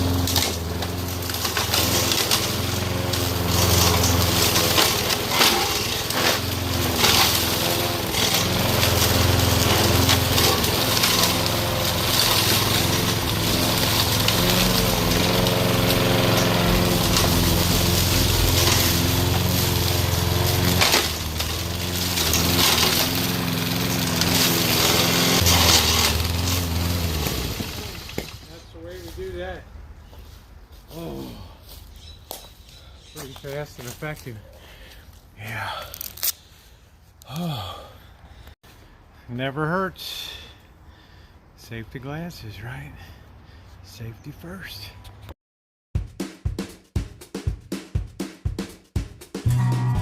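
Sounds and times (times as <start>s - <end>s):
mower engine under load: 0.0s - 29.5s, 49.5s - 50.0s
wood cracking and snapping: 0.1s - 2.5s, 3.5s - 7.4s, 10.1s - 28.6s.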